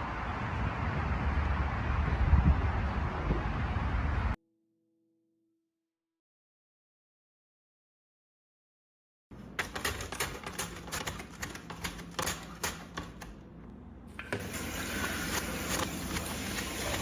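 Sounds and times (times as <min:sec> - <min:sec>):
quick irregular clicks and taps: 0:09.6 - 0:13.4.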